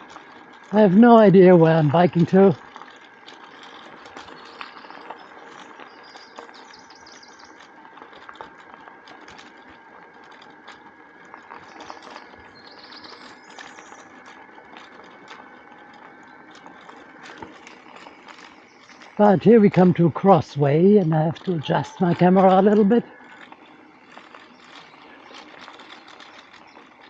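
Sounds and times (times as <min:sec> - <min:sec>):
bicycle rattling and ticking: 0:00.0 - 0:27.0
faint bird chirps: 0:04.4 - 0:07.6, 0:11.6 - 0:14.1.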